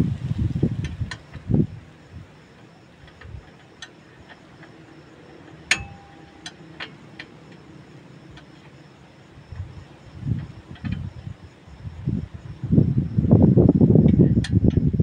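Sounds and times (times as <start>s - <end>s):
metallic tool clicks: 5.5s - 7.3s
sharp metal clink: 5.7s - 6.5s.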